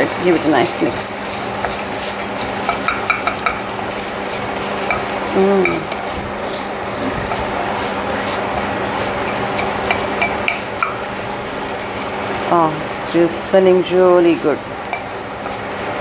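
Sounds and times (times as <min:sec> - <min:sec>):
beans and onion sizzling: 0:00.0 - 0:16.0
spatula scraping pot: 0:00.2 - 0:11.1
spatula knocking against pot: 0:02.6 - 0:03.7, 0:08.6 - 0:11.0.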